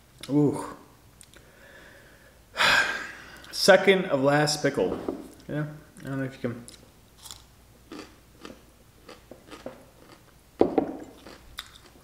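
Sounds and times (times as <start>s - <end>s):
pickle being chewed: 6.7s - 12.0s.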